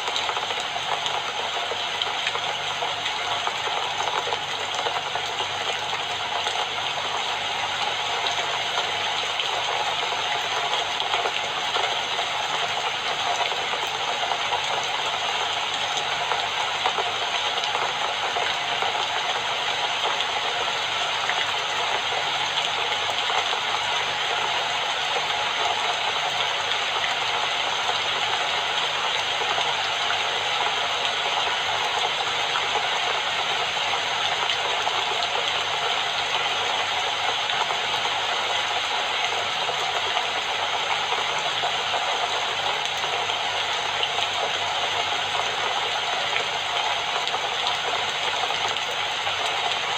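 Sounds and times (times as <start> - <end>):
steady rainfall: 0.0 - 49.9.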